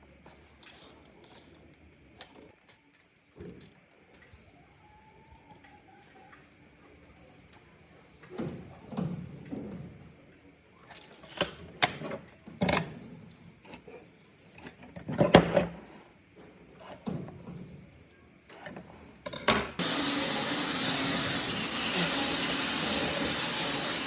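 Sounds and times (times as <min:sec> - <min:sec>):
power tool running with hiss: 0:19.8 - 0:24.0.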